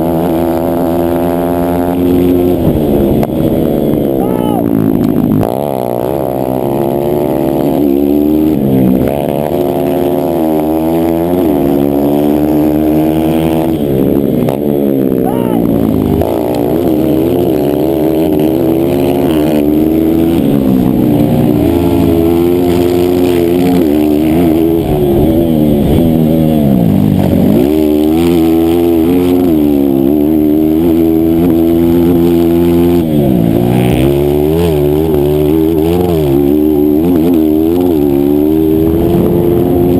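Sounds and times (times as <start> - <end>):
motorcycle engine revving hard: 0.0 - 39.9.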